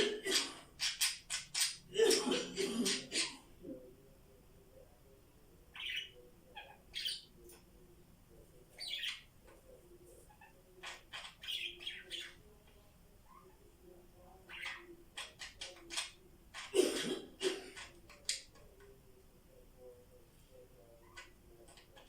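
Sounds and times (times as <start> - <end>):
parrots chirping and squawking: 0.0 - 3.6, 5.7 - 7.3, 8.8 - 9.3, 10.2 - 12.4, 14.4 - 16.8, 17.7 - 18.6.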